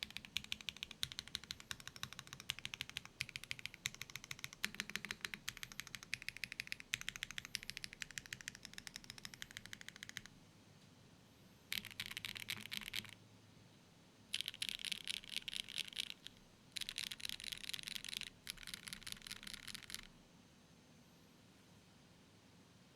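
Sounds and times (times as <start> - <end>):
mechanical keyboard typing: 0.0 - 10.3, 11.7 - 13.2, 14.3 - 20.1.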